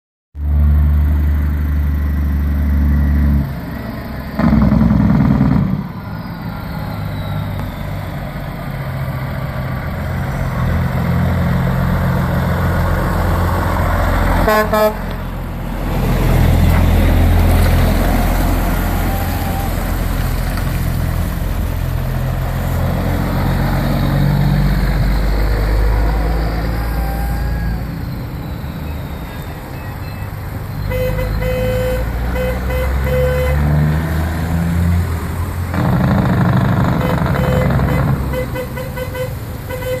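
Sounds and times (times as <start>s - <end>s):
diesel truck engine rumbling: 0.4s - 40.0s.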